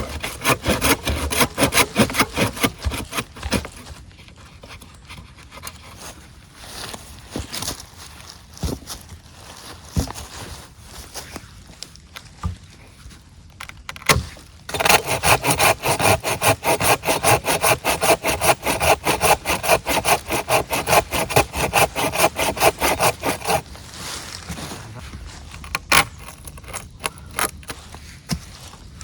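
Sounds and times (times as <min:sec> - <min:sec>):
hand saw cutting wood: 0:00.0 - 0:05.9, 0:14.1 - 0:23.7, 0:25.6 - 0:27.8.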